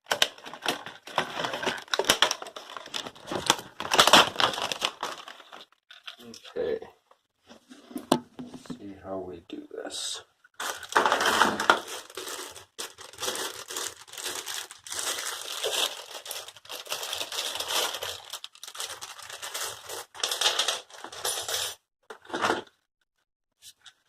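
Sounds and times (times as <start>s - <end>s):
packaging crinkling and rustling: 0.0s - 6.2s, 10.6s - 21.2s.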